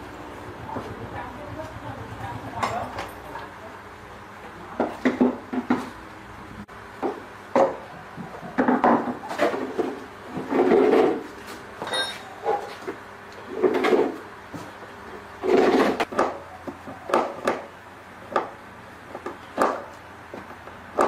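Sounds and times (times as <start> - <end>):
hard objects knocking and scraping: 4.8 - 6.0, 7.0 - 14.8.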